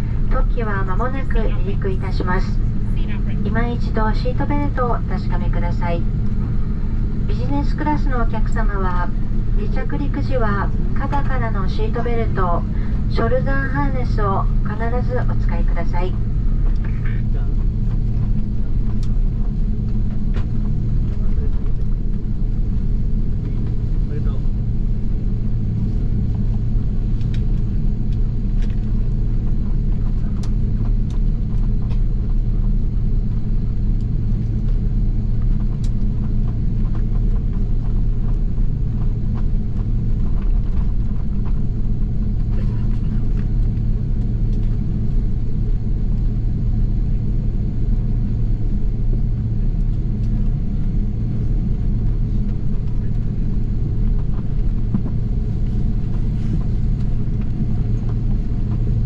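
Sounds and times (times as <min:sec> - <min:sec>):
aircraft cabin engine rumble: 0:00.0 - 0:59.0.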